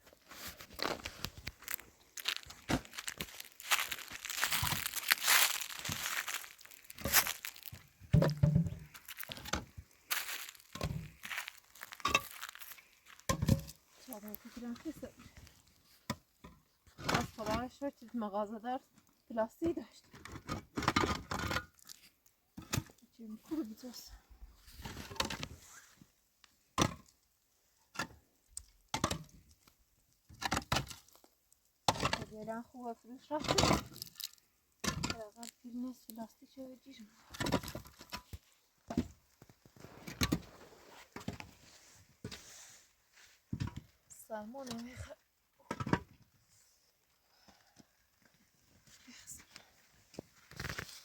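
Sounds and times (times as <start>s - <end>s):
plastic sheeting crinkling: 0.4s - 7.9s.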